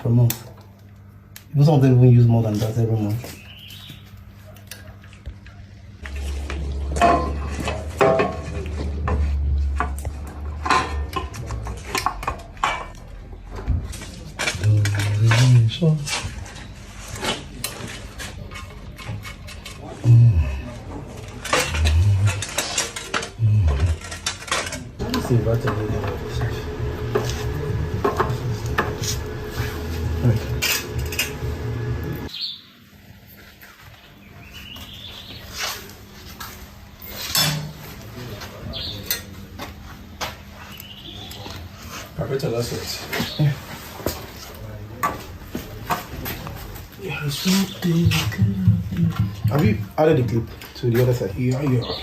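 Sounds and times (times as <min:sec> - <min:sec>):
generator engine humming: 0:25.0 - 0:32.3.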